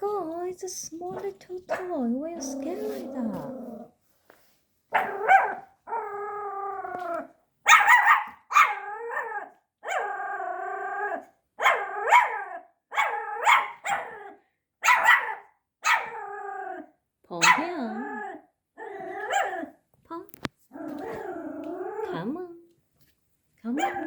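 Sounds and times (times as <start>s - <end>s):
puppy barking and howling: 5.0s - 19.8s, 23.8s - 24.0s.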